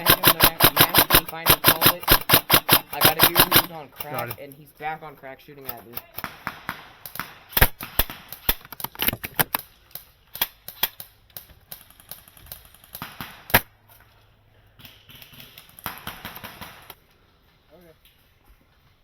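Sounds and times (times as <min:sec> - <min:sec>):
airsoft guns firing: 0:00.0 - 0:04.5, 0:05.6 - 0:13.7, 0:14.7 - 0:17.0.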